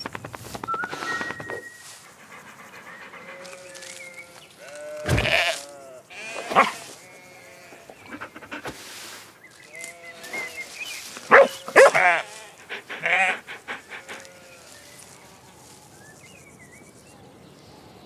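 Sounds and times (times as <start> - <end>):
cartoon dog barking and yelping: 11.3 - 12.2.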